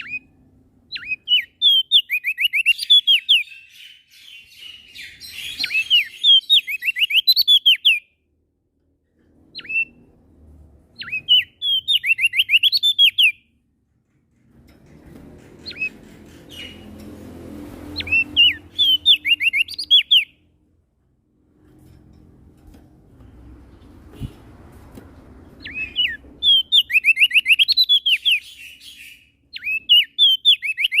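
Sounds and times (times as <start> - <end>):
songbird whistled notes: 18.0 - 20.3, 25.6 - 31.0.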